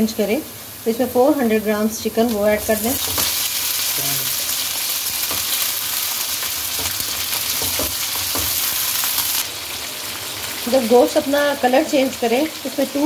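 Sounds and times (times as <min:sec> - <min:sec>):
chicken and onions sizzling in oil: 0:00.0 - 0:13.0
wooden spatula knocking on pan: 0:05.1 - 0:05.7, 0:06.7 - 0:09.3.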